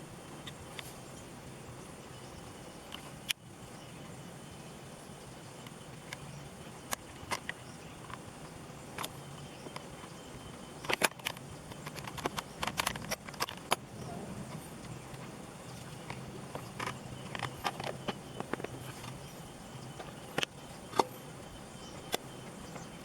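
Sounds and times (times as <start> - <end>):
steady low hum: 0.0 - 23.0
sharp clicks and light knocks: 5.6 - 23.0.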